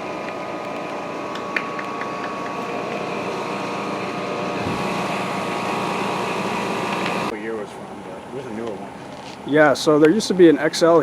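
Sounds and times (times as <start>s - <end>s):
heat pump fan rushing: 0.0s - 7.3s
machinery humming tones: 0.0s - 7.3s.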